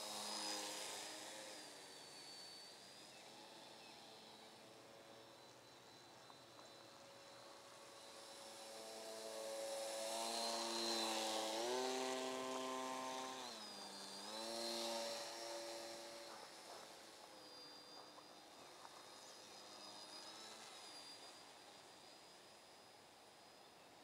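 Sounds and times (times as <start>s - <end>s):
electric model plane buzzing: 0.0s - 24.0s.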